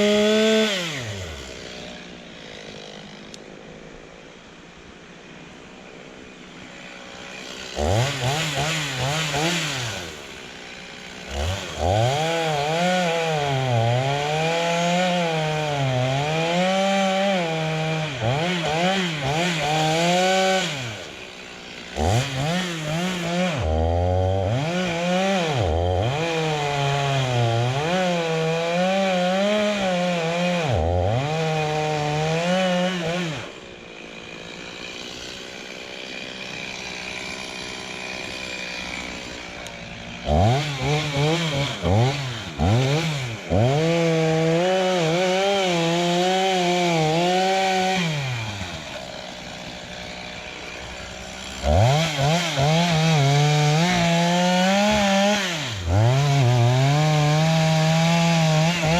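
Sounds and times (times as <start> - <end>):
chainsaw cutting into tree: 0.0 - 58.9.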